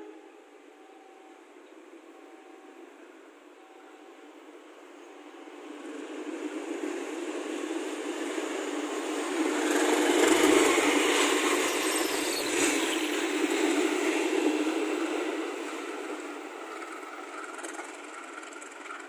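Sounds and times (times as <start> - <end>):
diesel locomotive engine: 0.0 - 19.0
wheels rolling on rails: 5.7 - 19.0.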